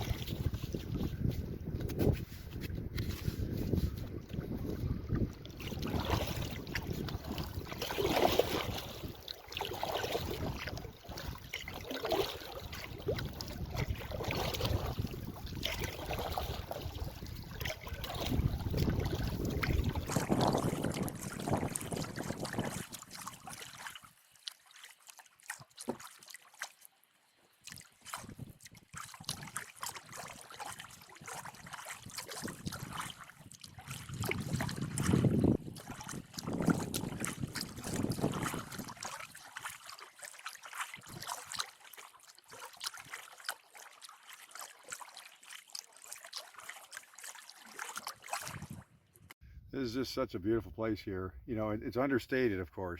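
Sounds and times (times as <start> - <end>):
wind buffeting microphone: 0.0 - 9.2, 13.0 - 23.0, 31.5 - 33.2, 33.8 - 39.0, 48.5 - 49.8
canoe paddle strokes: 0.0 - 49.4
water trickling and splashing: 0.0 - 49.4.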